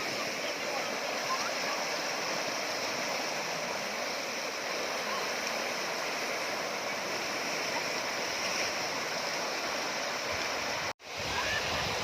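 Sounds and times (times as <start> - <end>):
waterfall rushing over rock: 0.0 - 12.0.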